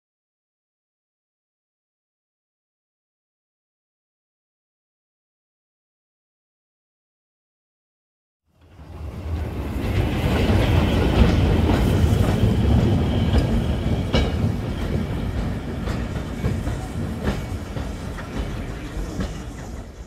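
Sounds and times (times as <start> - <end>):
train wheels clickety-clack: 8.8 - 20.0.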